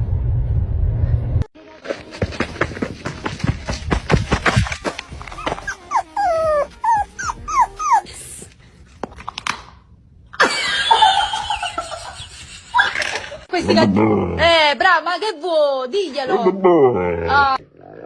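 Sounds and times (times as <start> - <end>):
dog whimpering and yipping: 5.3 - 8.2.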